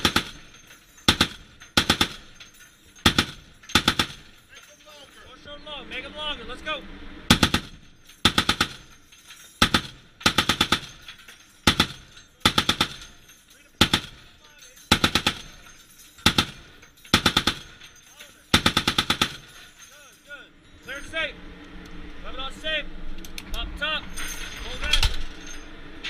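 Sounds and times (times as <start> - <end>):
heavy machine gun bursts: 0.0 - 4.7, 7.3 - 9.0, 9.6 - 19.8.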